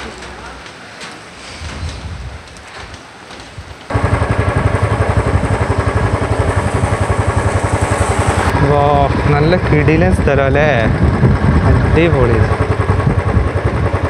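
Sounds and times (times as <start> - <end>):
motorcycle engine idling: 3.9 - 14.0.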